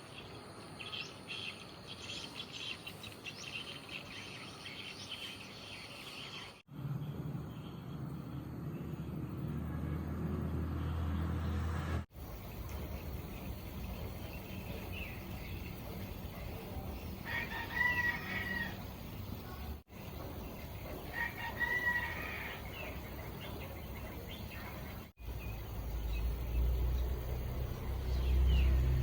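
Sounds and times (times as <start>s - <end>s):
rooster crowing: 17.2s - 18.8s, 21.1s - 22.9s.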